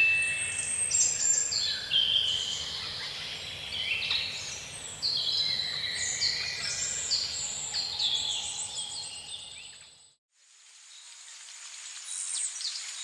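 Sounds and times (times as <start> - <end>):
birds singing: 0.0 - 10.0
insect-like hiss: 10.4 - 13.0.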